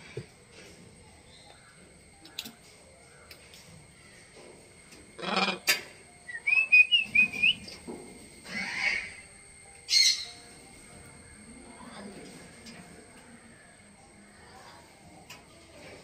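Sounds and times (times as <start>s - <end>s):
harsh squawk-like bursts: 5.2s - 5.7s, 8.4s - 9.3s
quick whistled notes: 6.3s - 7.7s.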